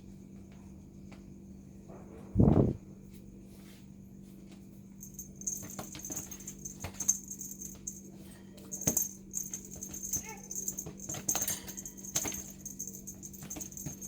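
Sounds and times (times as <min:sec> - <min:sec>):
light jingling and rattling: 0:05.0 - 0:14.0.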